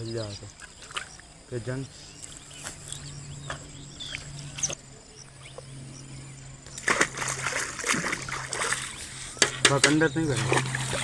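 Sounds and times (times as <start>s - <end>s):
water splashing and sloshing: 0.0s - 4.8s, 6.6s - 11.0s
birds chirping: 0.0s - 11.0s
low hum: 1.9s - 11.0s.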